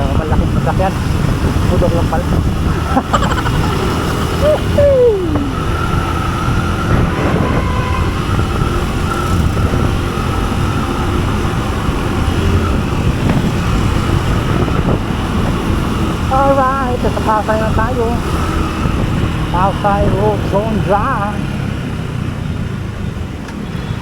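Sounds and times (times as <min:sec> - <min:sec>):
road traffic and engines: 0:00.0 - 0:24.0
tone sliding down: 0:03.1 - 0:09.8.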